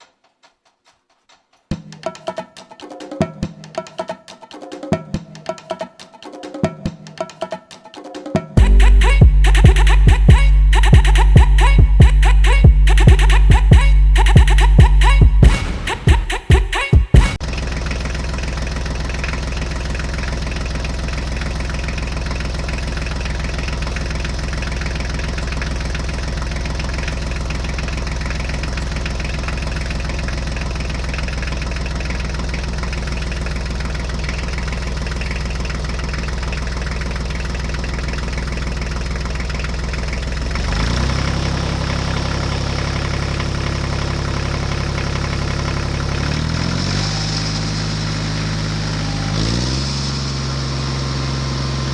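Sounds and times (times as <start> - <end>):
vehicle engine idling: 17.4 - 51.9.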